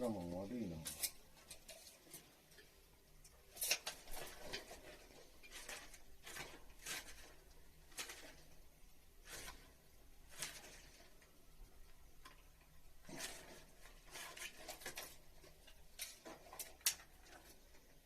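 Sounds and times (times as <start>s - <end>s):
hands rustling and scraping materials: 0.0s - 18.0s.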